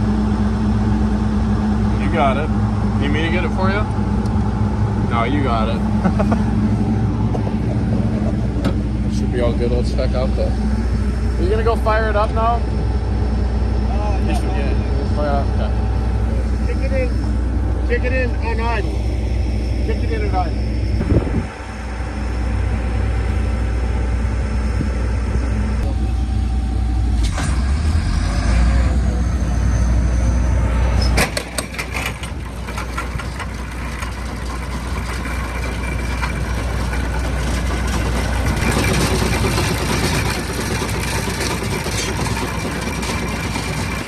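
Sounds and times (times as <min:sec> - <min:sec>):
combine harvester running: 0:00.0 - 0:44.0
mechanical clatter: 0:30.8 - 0:44.0.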